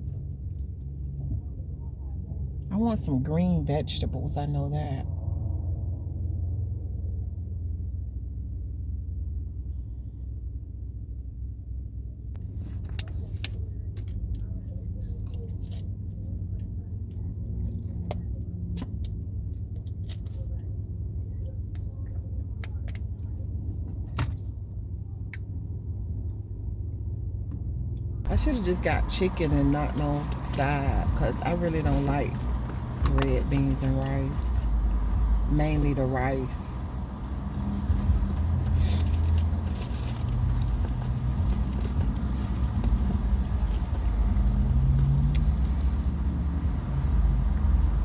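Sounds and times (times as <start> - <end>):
car cabin rumble: 27.4 - 48.0.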